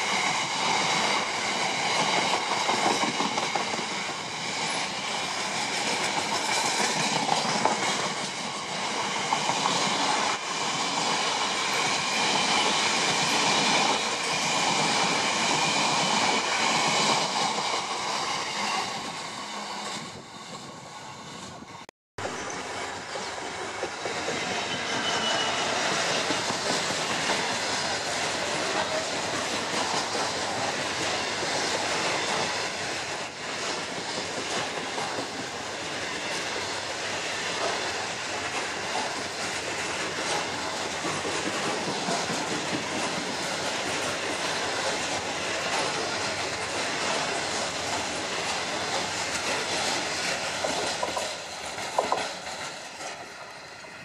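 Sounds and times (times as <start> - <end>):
train wheels clattering on rails: 0.0 - 54.0.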